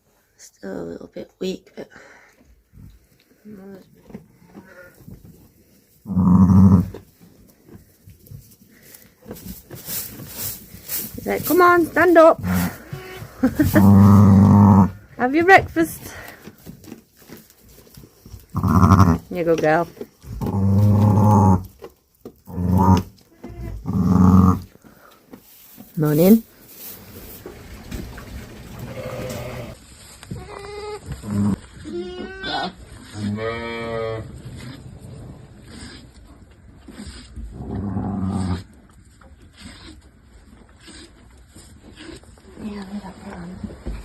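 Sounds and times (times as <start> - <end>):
rustling: 2.7 - 33.3
lamb bleating: 18.6 - 19.2, 28.9 - 29.8, 30.4 - 34.2.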